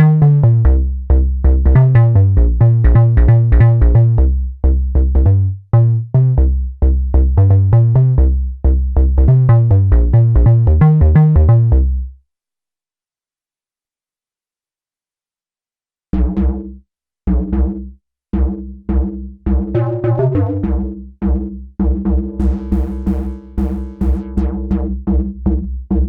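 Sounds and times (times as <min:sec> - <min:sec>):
synthesizer bass line: 0:00.0 - 0:12.0, 0:19.6 - 0:20.8, 0:22.4 - 0:24.8.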